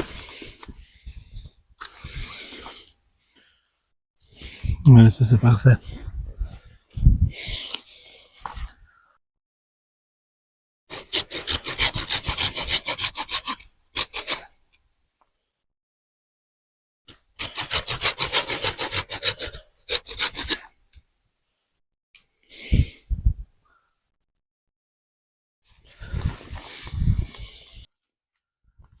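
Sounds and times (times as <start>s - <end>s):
hand saw cutting wood: 10.9s - 14.6s, 17.1s - 20.8s.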